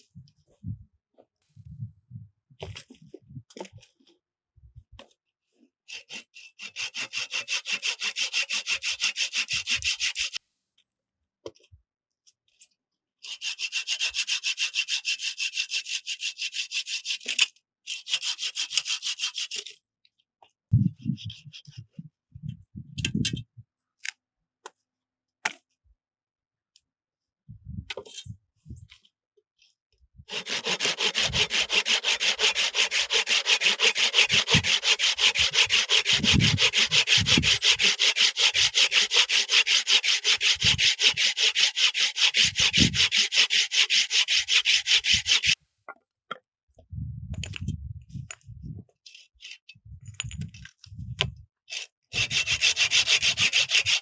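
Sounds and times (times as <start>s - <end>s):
hand saw cutting wood: 5.9s - 10.4s, 13.2s - 19.8s, 30.3s - 45.6s, 51.7s - 54.0s.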